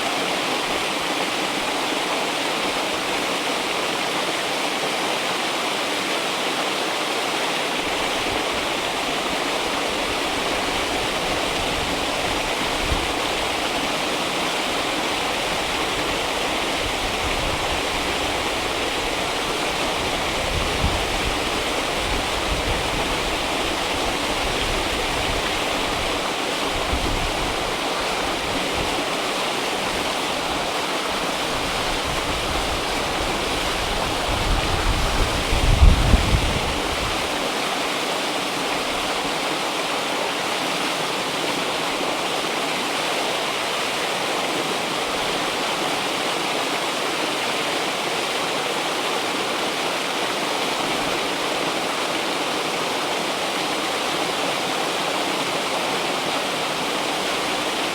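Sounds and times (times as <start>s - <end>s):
river water rushing: 0.0s - 57.9s.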